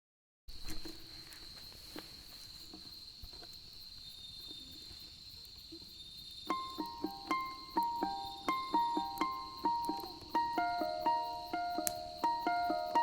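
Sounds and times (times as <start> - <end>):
campfire crackling and popping: 2.6 - 13.0
high-pitched insect drone: 5.8 - 13.0
ukulele plucking: 6.5 - 13.0.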